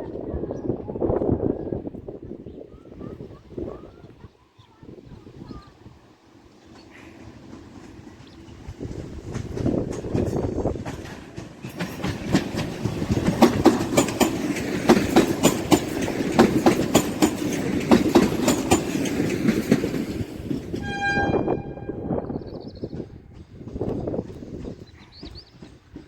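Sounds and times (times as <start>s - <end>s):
train wheels clacking on rails: 6.5s - 21.7s, 22.6s - 26.0s.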